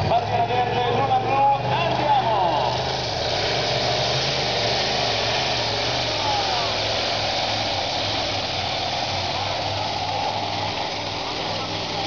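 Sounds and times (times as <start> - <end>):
tractor engine running hard: 0.0 - 12.0.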